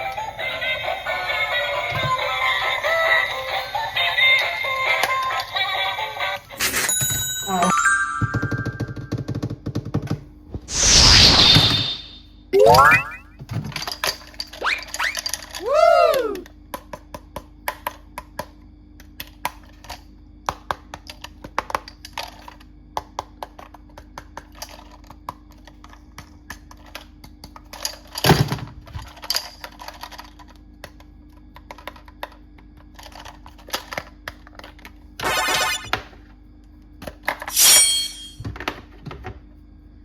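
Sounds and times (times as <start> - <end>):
plastic toys clicking and tapping: 13.5 - 15.7, 16.4 - 35.0.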